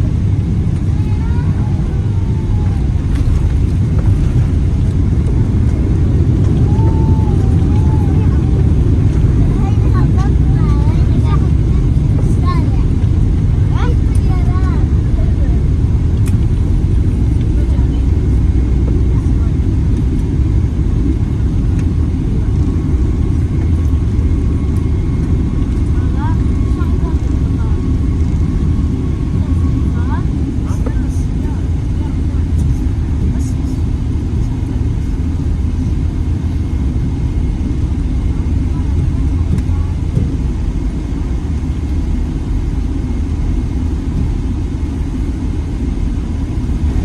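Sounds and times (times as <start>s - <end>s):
airplane cabin rumble: 0.0s - 47.0s
faint steady whine: 0.0s - 47.0s.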